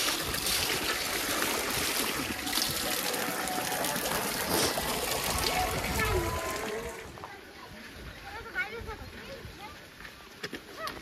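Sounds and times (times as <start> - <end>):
mountain stream rushing: 0.0 - 7.3.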